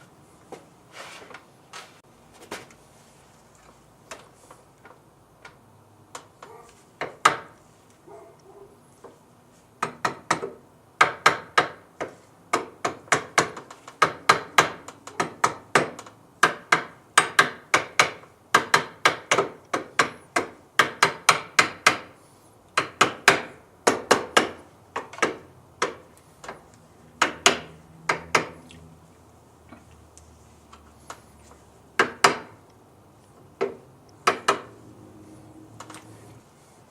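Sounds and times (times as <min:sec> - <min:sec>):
hammer tapping on metal: 0:27.2 - 0:28.6, 0:33.6 - 0:34.7.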